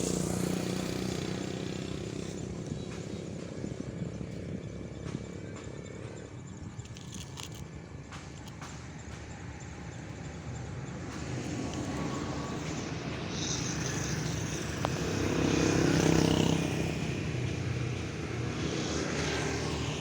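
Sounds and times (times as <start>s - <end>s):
small motor and gearbox whirring: 5.2s - 20.0s.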